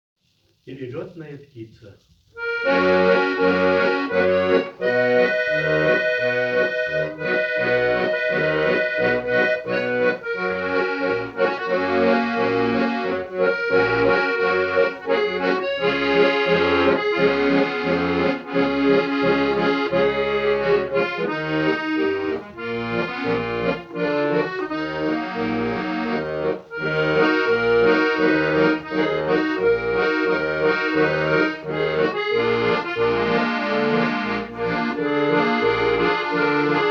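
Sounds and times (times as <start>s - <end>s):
accordion melody: 2.4s - 36.9s
pulsing bass accompaniment: 2.4s - 36.9s.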